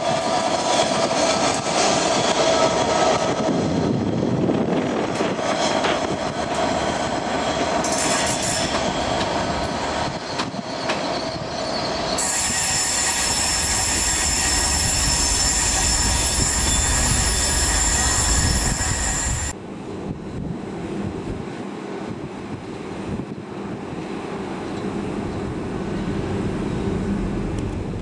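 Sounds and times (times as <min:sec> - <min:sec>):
high-pitched wheel squeal: 0:07.5 - 0:19.6.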